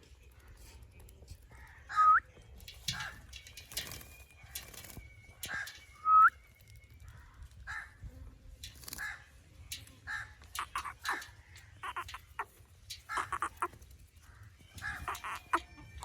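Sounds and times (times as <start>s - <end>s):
parrot squawking: 10.6s - 13.8s, 14.8s - 16.0s.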